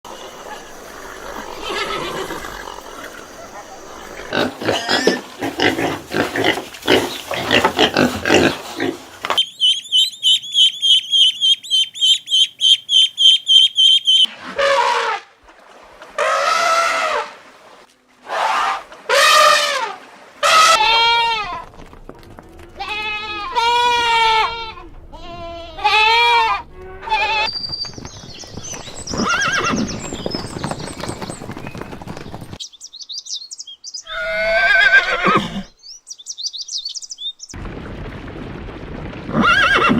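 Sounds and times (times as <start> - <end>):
drawn-out animal calls: 0.2 - 5.1
fast high rhythmic chirping: 9.4 - 14.3.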